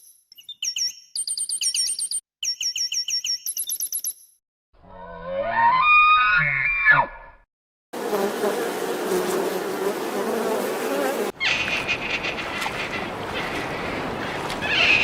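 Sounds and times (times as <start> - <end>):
flying insect buzzing: 8.0 - 11.4.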